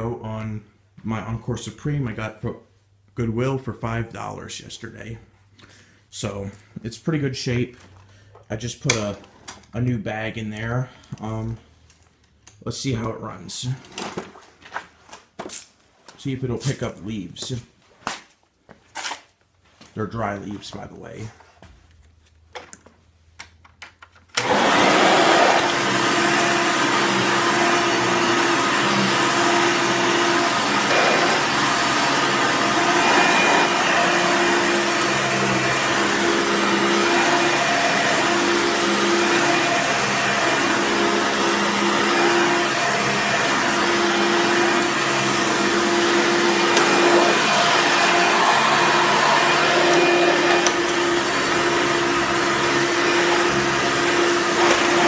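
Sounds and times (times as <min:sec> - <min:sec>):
vacuum cleaner motor running: 0:24.4 - 0:55.0.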